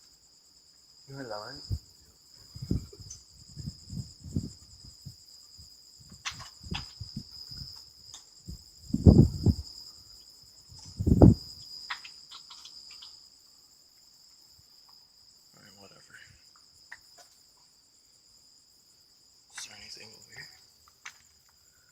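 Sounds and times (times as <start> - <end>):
crickets chirping: 0.0 - 21.9.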